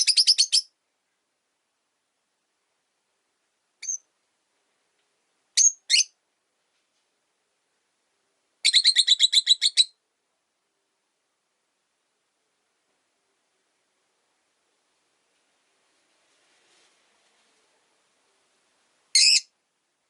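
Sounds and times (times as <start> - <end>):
lovebirds chirping: 0.0 - 0.8, 3.8 - 4.1, 5.6 - 6.2, 8.6 - 10.0, 19.1 - 19.5.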